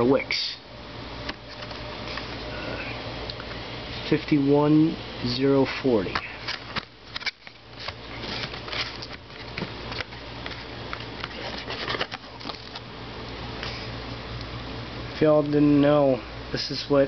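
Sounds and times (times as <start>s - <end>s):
steady low hum: 0.0s - 17.0s
cardboard box rustling: 6.5s - 12.8s.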